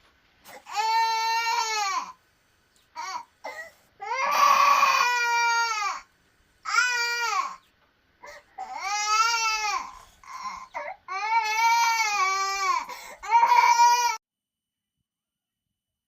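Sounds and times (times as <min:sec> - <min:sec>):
young child crying: 0:08.3 - 0:14.2.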